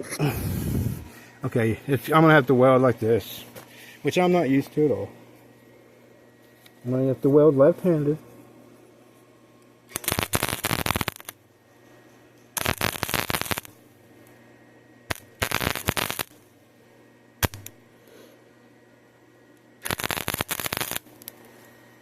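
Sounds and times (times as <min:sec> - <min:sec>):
welding arc strikes: 0:09.9 - 0:11.4, 0:12.6 - 0:13.8, 0:15.1 - 0:16.4, 0:17.4 - 0:17.8, 0:19.8 - 0:21.3
arc welder crackling: 0:09.9 - 0:11.6, 0:12.4 - 0:14.0, 0:15.0 - 0:16.6, 0:17.4 - 0:17.9, 0:19.6 - 0:21.7.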